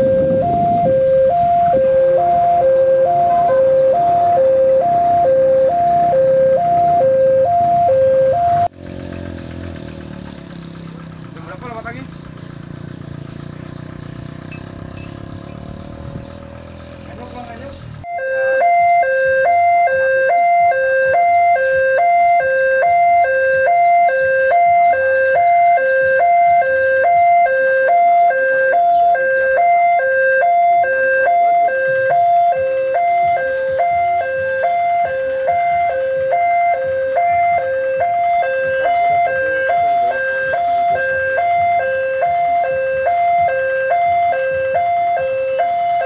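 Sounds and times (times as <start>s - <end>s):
level crossing two-tone alarm: 0.0s - 8.7s, 18.0s - 46.0s.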